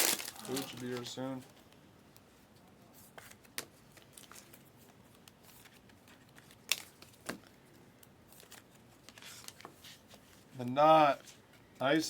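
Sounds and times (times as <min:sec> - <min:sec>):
packaging rustling and clicking: 0:00.0 - 0:01.2.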